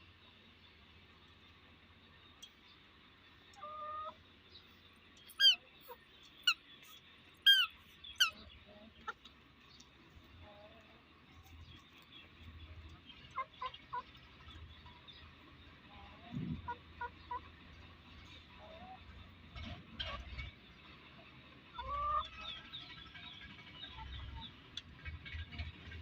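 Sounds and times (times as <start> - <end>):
chickens squawking: 3.3 - 4.3, 5.3 - 9.3, 12.7 - 14.8, 15.9 - 17.6, 18.2 - 19.3, 21.2 - 23.1.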